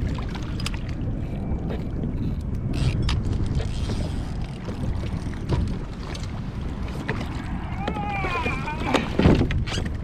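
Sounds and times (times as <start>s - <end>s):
wind buffeting microphone: 0.0s - 10.0s
knocks against a boat: 6.9s - 10.0s.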